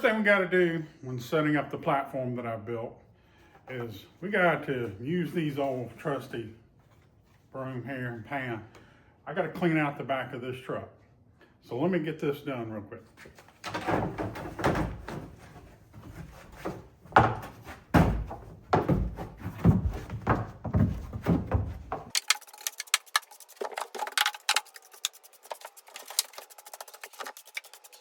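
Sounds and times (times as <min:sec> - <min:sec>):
broom sweeping truck bed: 0:21.8 - 0:28.0.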